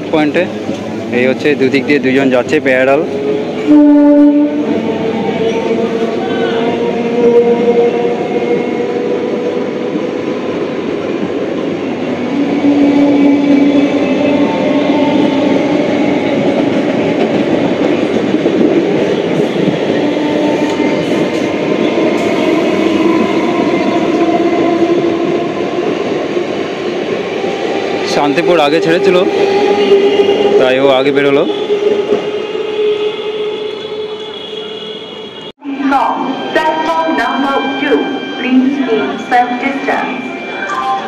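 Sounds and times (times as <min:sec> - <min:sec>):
train wheels rumbling and clattering: 0:00.0 - 0:03.7, 0:04.6 - 0:32.7.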